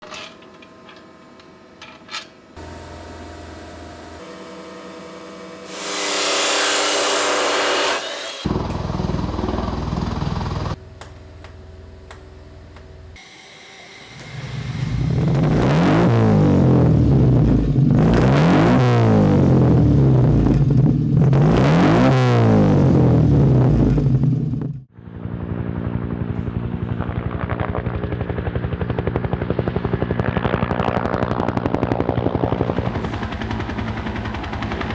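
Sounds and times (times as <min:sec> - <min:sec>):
car engine revving and idling: 0:02.6 - 0:05.8, 0:14.7 - 0:24.9
loud hiss: 0:02.6 - 0:08.4, 0:13.2 - 0:15.6.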